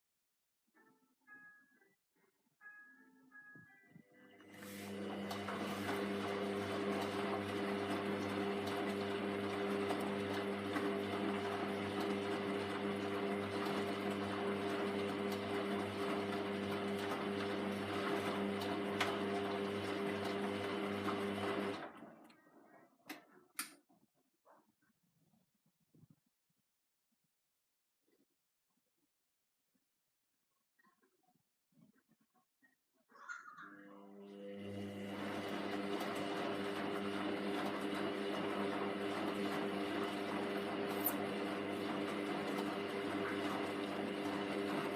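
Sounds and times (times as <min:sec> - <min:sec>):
washing machine motor hum: 0:04.3 - 0:22.7, 0:33.8 - 0:44.9.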